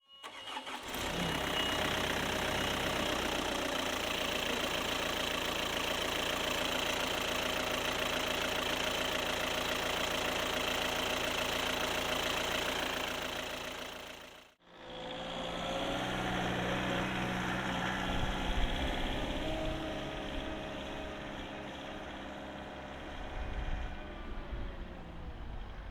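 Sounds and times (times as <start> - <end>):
forklift diesel engine running: 0.2 - 14.9, 15.5 - 25.9.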